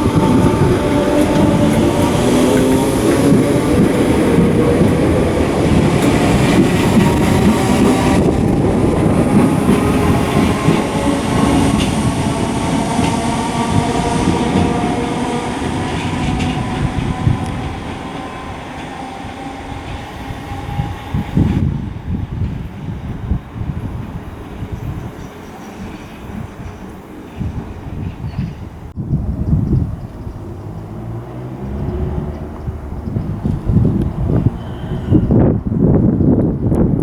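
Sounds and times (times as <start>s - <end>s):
steady whining tones: 0.0s - 21.5s
train wheels rumbling on rail: 0.0s - 37.0s.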